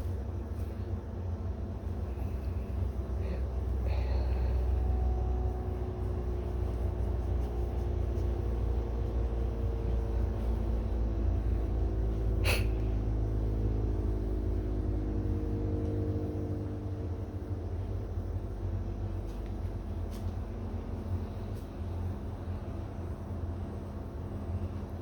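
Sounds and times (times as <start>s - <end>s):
low mechanical hum and rumble: 0.0s - 25.0s.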